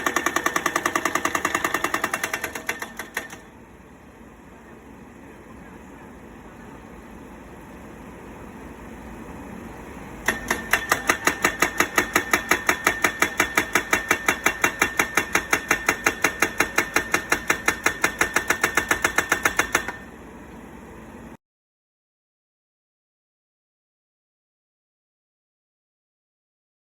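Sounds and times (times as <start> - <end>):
hammer striking steel pile: 10.2 - 20.0.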